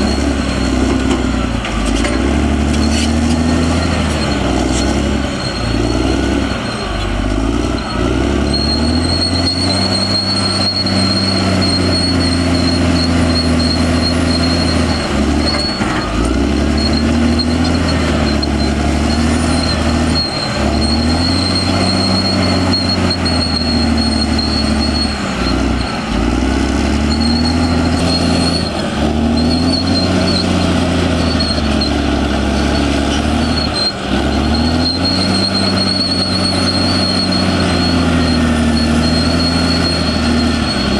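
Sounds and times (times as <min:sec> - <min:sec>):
bulldozer diesel engine working: 0:00.0 - 0:40.9.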